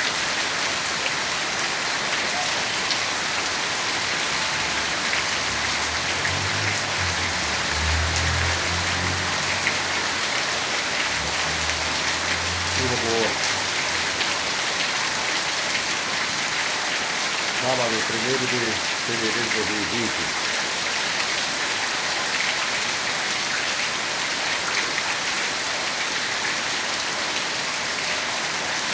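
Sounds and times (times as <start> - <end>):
heavy rain falling: 0.0 - 28.9.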